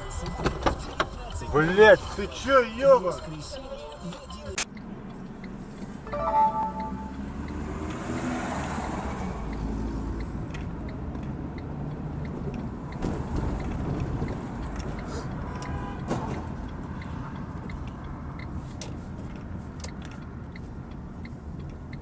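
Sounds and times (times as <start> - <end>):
car engine and road noise: 0.0 - 22.0
short loud tone: 6.1 - 7.2.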